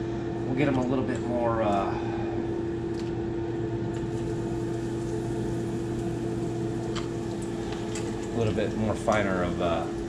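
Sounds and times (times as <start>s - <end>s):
machine hum: 0.0s - 10.0s
fish frying in oil: 4.1s - 10.0s.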